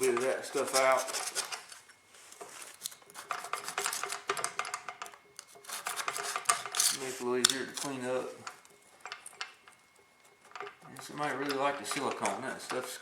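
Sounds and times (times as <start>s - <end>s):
hand tool scraping dirt off metal: 0.0s - 1.8s, 5.4s - 8.0s.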